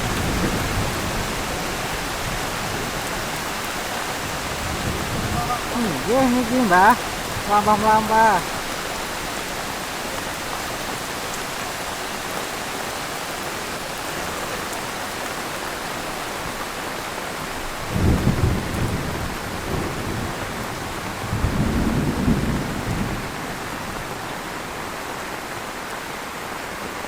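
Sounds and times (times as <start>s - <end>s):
thunder rumbling: 0.0s - 9.8s, 17.6s - 24.2s
heavy rain falling: 0.0s - 27.0s.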